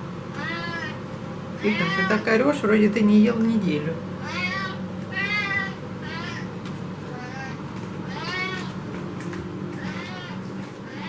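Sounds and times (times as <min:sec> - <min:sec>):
kitchen stove humming: 0:00.0 - 0:11.0
cat meowing: 0:00.3 - 0:01.0, 0:01.6 - 0:02.3, 0:04.2 - 0:08.8, 0:09.8 - 0:11.0.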